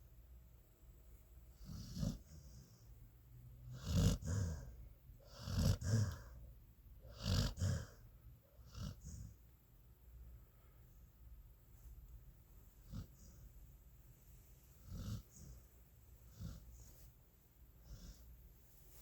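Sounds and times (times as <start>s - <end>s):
dog snoring: 1.6s - 2.8s, 3.6s - 6.4s, 7.0s - 8.0s, 8.6s - 9.4s, 12.8s - 13.4s, 14.8s - 15.6s, 16.2s - 17.0s, 17.8s - 18.3s.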